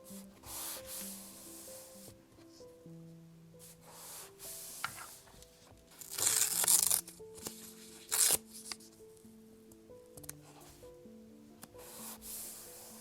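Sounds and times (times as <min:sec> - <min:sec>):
soft background music: 0:00.0 - 0:13.0
paper tearing: 0:06.0 - 0:07.1, 0:08.0 - 0:08.4.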